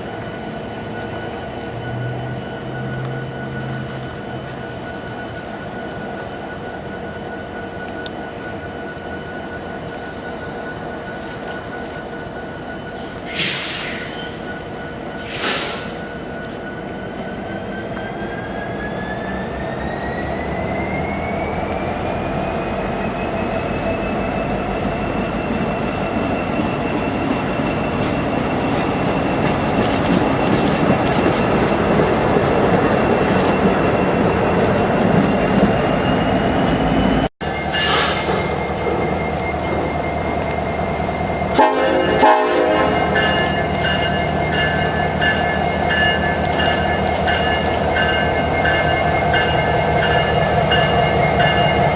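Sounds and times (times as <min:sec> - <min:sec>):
freight train rumbling past: 0:00.0 - 0:51.9
train wheels squealing: 0:00.0 - 0:51.9
train clanks: 0:23.0 - 0:51.9.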